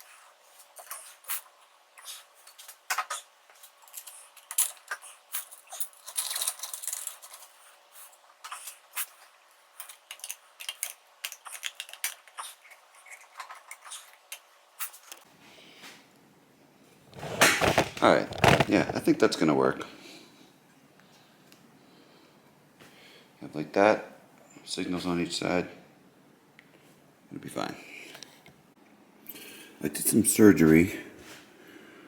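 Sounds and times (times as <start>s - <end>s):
scraping rattle: 17.1s - 19.0s.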